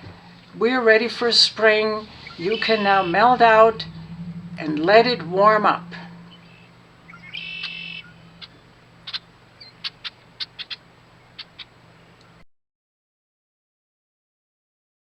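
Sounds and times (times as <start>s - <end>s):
blackbird buzzy trill: 1.6s - 11.8s
blackbird sharp call notes: 2.0s - 4.2s, 6.3s - 10.8s.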